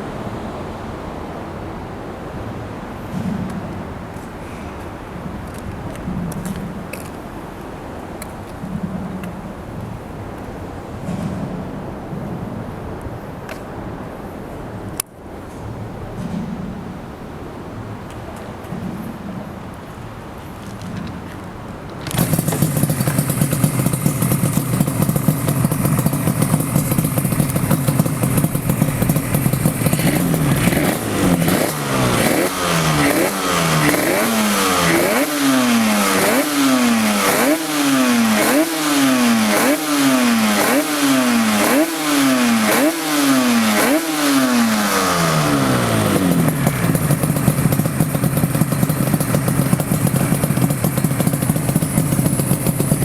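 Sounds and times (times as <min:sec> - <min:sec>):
two-stroke engine idling and revving: 0:22.0 - 0:53.0.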